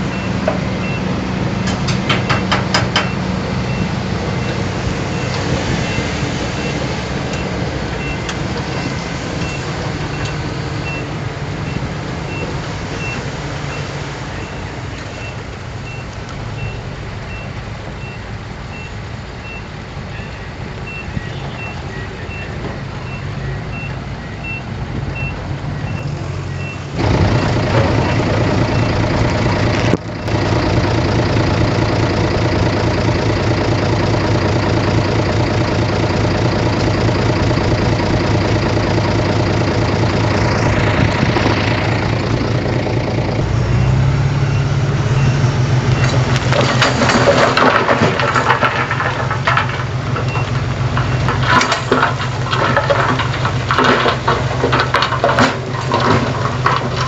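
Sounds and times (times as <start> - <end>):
reversing alarm beeping: 0.0 - 33.5, 36.2 - 46.8, 50.2 - 51.4
diesel machinery running: 0.0 - 57.0
metal clanking and rattling: 1.6 - 3.8, 46.0 - 57.0.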